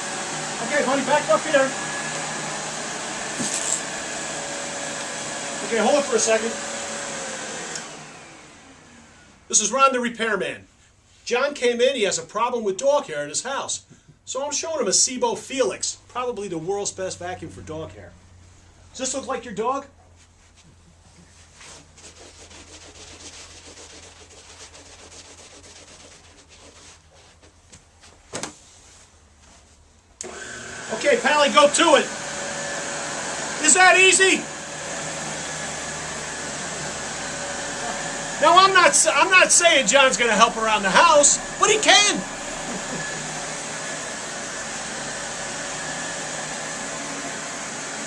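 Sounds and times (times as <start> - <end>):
vacuum cleaner running: 0.0 - 9.7, 30.2 - 48.0
scratchy rubbing and scuffing: 3.3 - 3.9, 20.1 - 30.0.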